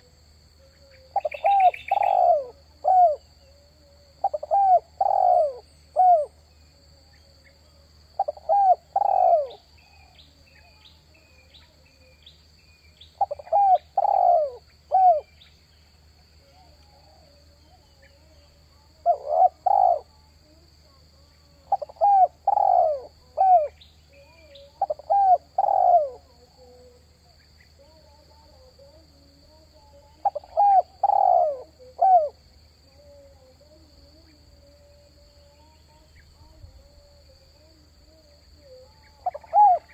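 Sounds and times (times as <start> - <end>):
dove cooing: 0.0 - 6.4, 8.2 - 10.8, 13.2 - 15.3, 19.0 - 20.6, 21.6 - 27.0, 29.8 - 35.6, 36.4 - 39.9.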